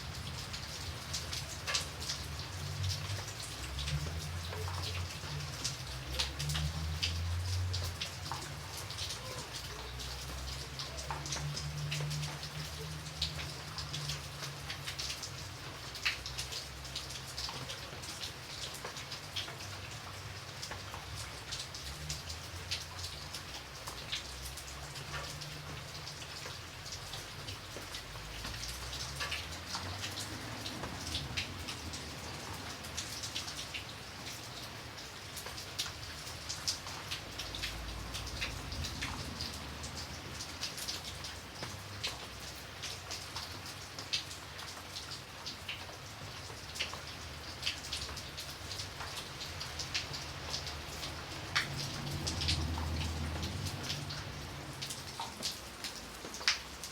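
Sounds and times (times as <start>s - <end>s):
rain hissing: 0.0s - 56.9s
raindrops ticking on surface: 0.0s - 56.9s.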